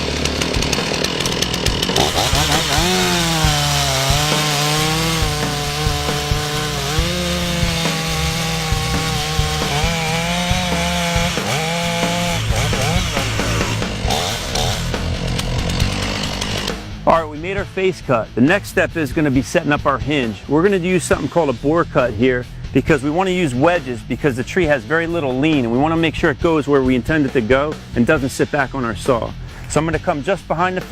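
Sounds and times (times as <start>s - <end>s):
chainsaw cutting into tree trunk: 0.0s - 17.0s.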